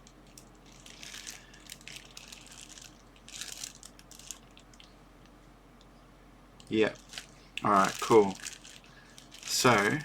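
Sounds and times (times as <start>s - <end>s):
packaging crinkling and rustling: 0.3s - 4.9s, 6.7s - 10.0s.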